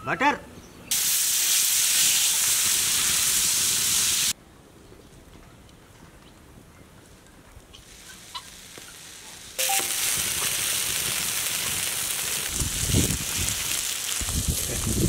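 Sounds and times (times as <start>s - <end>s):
bread sizzling on griddle: 0.9s - 4.4s, 7.9s - 15.0s.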